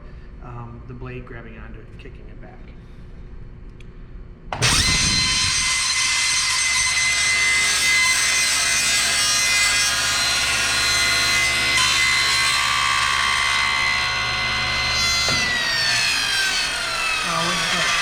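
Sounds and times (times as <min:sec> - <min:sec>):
table saw whining: 0:04.6 - 0:18.0.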